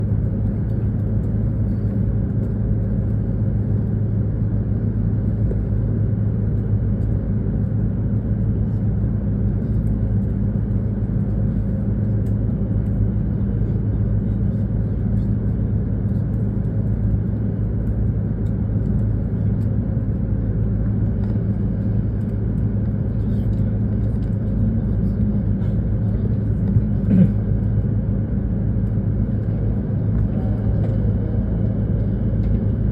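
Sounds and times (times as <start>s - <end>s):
low hum inside train carriage: 0.0s - 32.9s.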